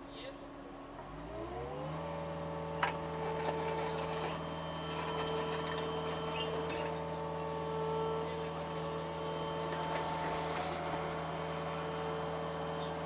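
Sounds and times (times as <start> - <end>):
faint high squeaks: 6.0 - 7.2.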